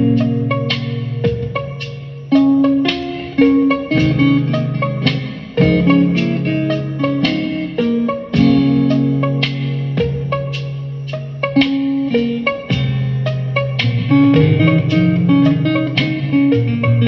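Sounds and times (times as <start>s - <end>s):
low sustained bass: 0.0s - 2.8s
mellow guitar music: 0.0s - 17.0s.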